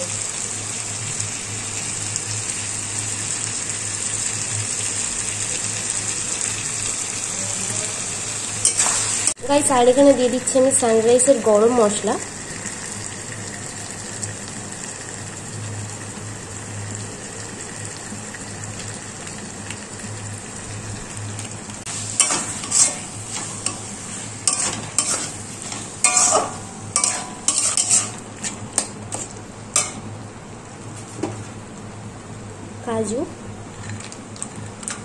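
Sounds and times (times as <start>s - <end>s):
food sizzling in a wok: 0.0s - 31.5s
metal spatula scraping a pan: 8.6s - 9.4s, 21.9s - 30.0s.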